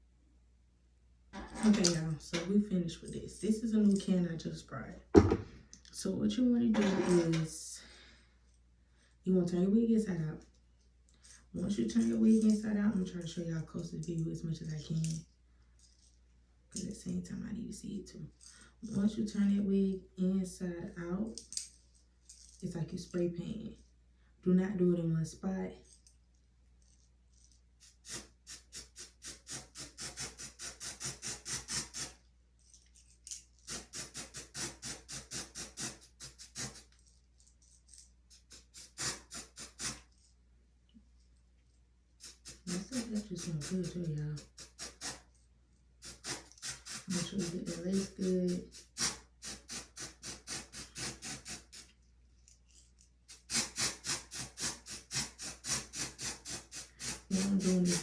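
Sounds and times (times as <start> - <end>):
spray can short bursts: 27.8 - 32.1, 33.7 - 36.9, 38.4 - 40.0, 42.2 - 45.2, 46.0 - 51.8, 53.3 - 58.0
rhythmic scrubbing strokes: 42.2 - 45.2, 46.0 - 51.8, 53.3 - 58.0.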